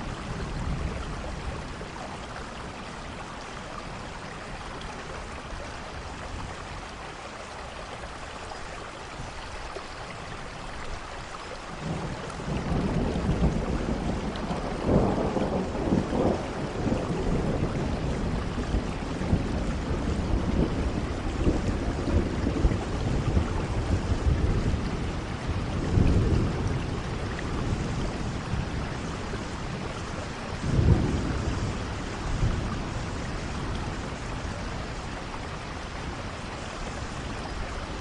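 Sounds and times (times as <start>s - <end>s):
steady rain: 0.0s - 38.0s
thunder rumble: 11.8s - 38.0s.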